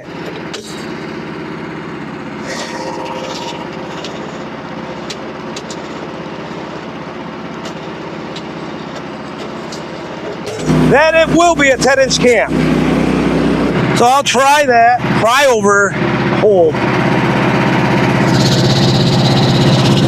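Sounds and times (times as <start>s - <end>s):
small gasoline engine running: 0.0s - 20.0s.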